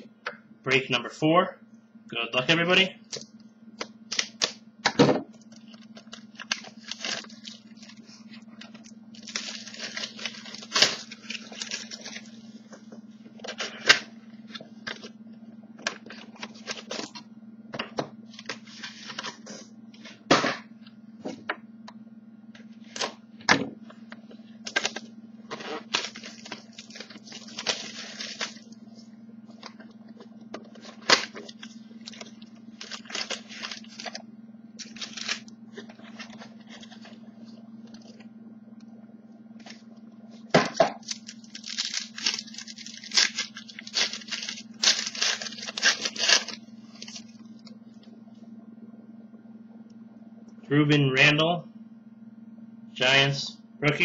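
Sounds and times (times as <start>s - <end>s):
low electrical hum: 0.0s - 54.0s
wrappers crinkling: 5.4s - 12.6s, 24.7s - 28.8s, 30.7s - 34.2s, 34.8s - 38.2s, 41.0s - 47.7s.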